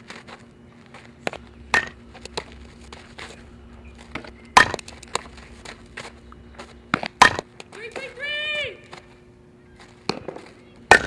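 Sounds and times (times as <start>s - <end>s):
softball striking cracks: 1.2s - 3.4s, 4.1s - 7.8s, 10.0s - 11.0s.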